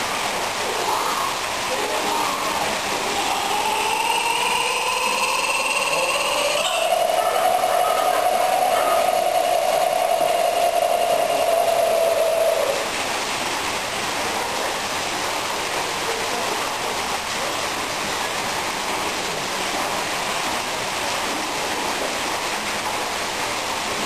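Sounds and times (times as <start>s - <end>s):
steady rushing noise: 0.0s - 24.0s
steady tone: 1.8s - 13.1s.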